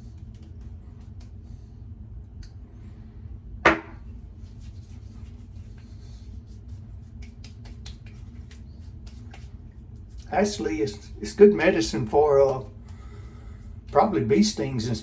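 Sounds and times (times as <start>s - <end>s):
low steady hum: 0.0s - 15.0s
hard object knocking on surface: 3.7s - 4.0s.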